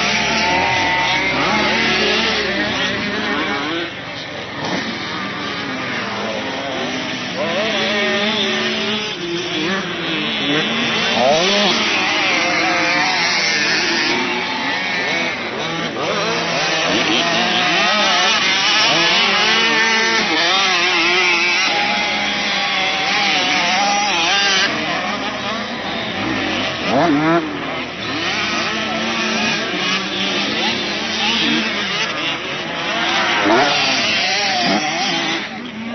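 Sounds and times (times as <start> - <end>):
motocross bike engines revving: 0.0 - 35.9.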